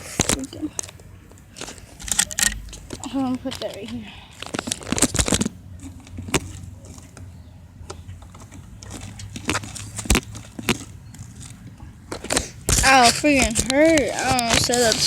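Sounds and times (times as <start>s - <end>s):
handling clicks and knocks: 0.0s - 15.0s.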